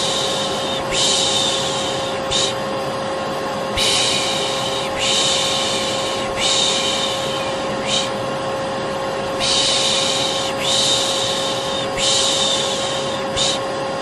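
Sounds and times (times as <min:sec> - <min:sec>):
vacuum cleaner running: 0:00.0 - 0:14.0
person shushing: 0:03.8 - 0:08.2.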